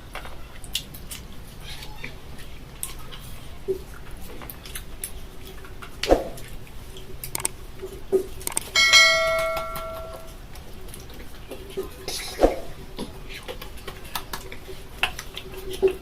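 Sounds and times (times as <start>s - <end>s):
knocks and clatters: 8.8s - 10.3s
metal object ringing bell-like: 8.8s - 10.3s.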